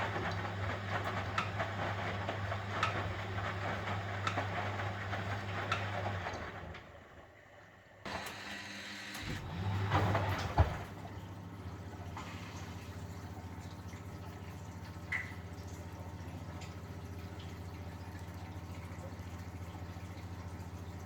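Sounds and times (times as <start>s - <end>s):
water swishing in drum: 0.0s - 7.3s, 9.2s - 21.0s
washing machine motor hum: 0.0s - 21.0s.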